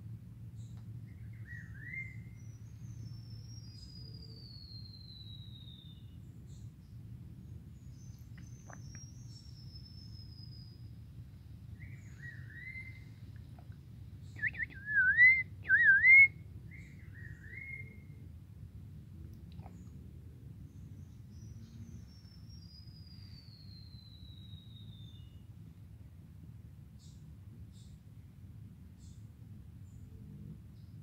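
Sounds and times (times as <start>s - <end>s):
looping whistled bird notes: 14.4s - 16.3s.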